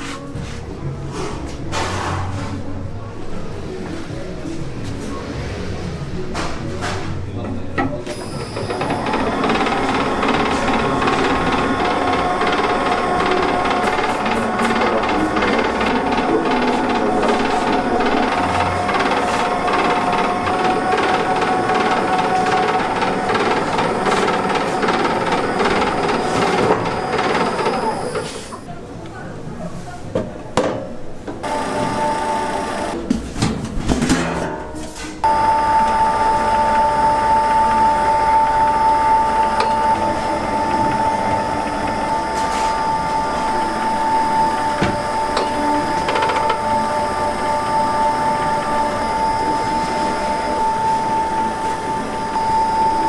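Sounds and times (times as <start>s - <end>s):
machine whining: 7.4s - 28.7s, 31.4s - 33.1s, 35.2s - 53.0s
high-pitched hum: 8.1s - 28.7s, 35.2s - 53.0s.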